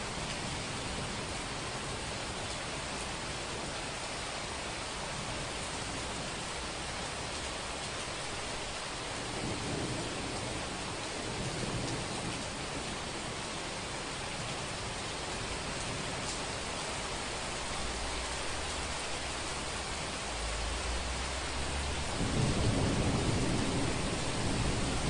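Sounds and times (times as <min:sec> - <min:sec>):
rain hiss: 0:00.0 - 0:25.0
thunder rumble: 0:20.4 - 0:25.0.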